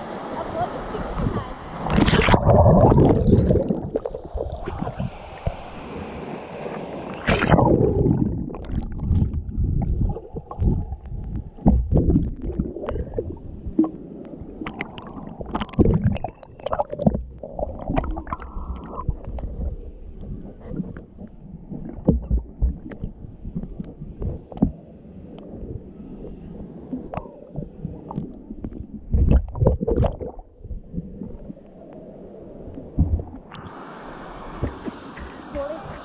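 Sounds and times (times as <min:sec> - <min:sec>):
water splashing and gurgling: 0:00.4 - 0:24.8, 0:25.4 - 0:31.8.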